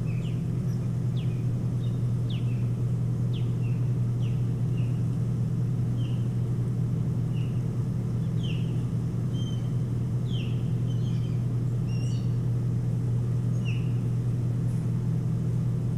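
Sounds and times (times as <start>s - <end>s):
steady low hum: 0.0s - 15.9s
bird whistled calls: 8.2s - 12.4s, 13.5s - 14.0s.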